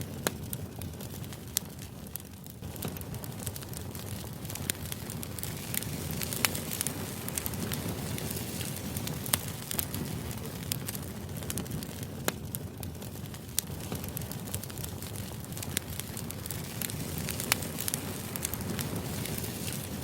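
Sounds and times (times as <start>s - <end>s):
fire crackling: 0.0s - 20.0s.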